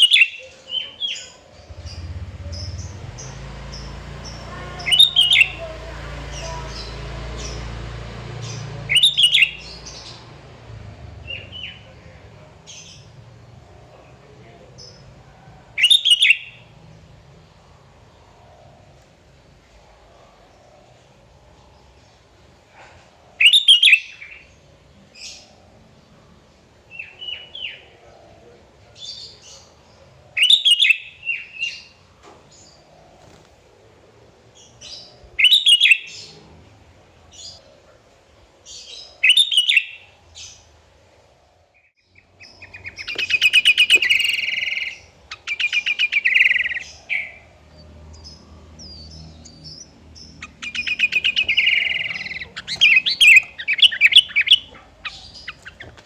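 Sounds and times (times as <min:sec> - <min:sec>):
bird singing: 0:00.0 - 0:17.4, 0:23.4 - 0:26.3, 0:26.9 - 0:33.4, 0:34.5 - 0:36.6, 0:38.6 - 0:40.8, 0:41.8 - 0:56.0
bird rapid chattering: 0:01.7 - 0:07.7, 0:42.4 - 0:47.4, 0:49.4 - 0:56.0.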